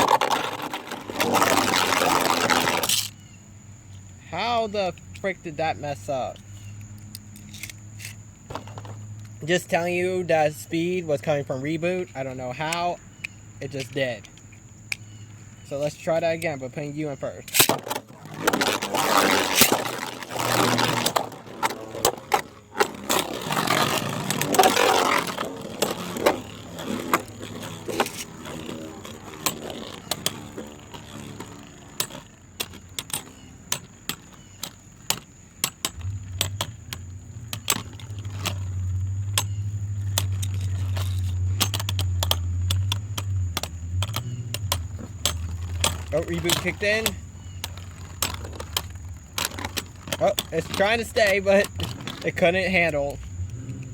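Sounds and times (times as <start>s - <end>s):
spinning tops launch rattle: 17.4s - 32.2s.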